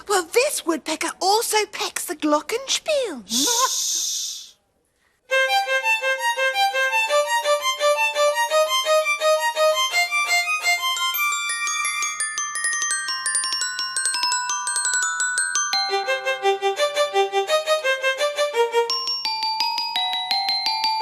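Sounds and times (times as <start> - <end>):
glockenspiel notes: 9.7 - 21.0.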